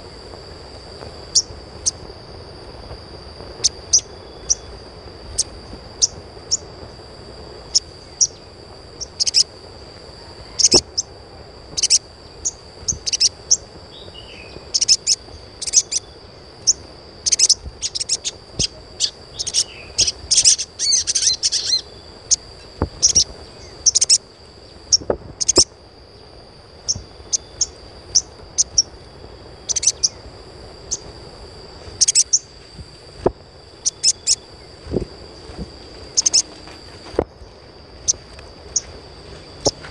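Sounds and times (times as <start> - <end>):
thin steady high tone: 0.0 - 39.9
bird chirping: 7.7 - 9.5, 11.7 - 22.4, 23.0 - 24.2, 29.7 - 30.2, 32.0 - 32.5, 33.8 - 34.4, 36.1 - 36.5.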